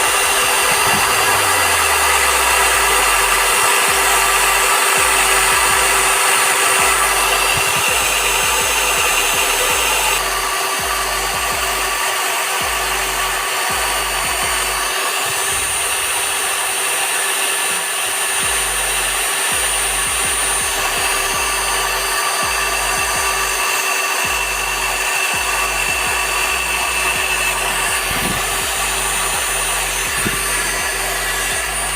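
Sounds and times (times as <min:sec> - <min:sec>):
electric drill whining: 0:00.0 - 0:31.9.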